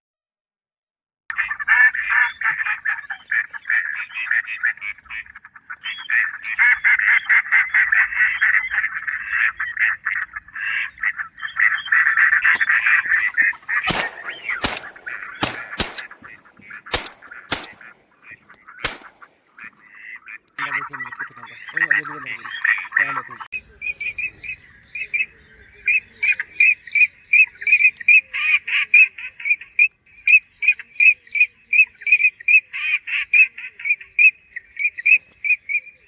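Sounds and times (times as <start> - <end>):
ducks quacking: 1.3 - 23.5
sharp clicks: 12.5 - 18.2, 18.8 - 19.6.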